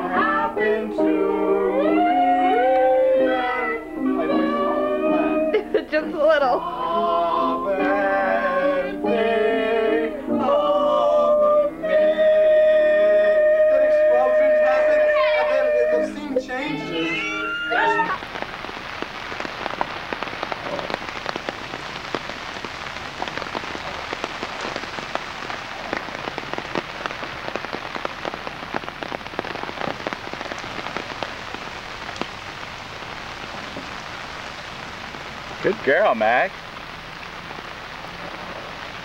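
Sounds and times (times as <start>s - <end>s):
person singing: 0.0s - 18.2s
rain falling on water: 0.0s - 39.0s.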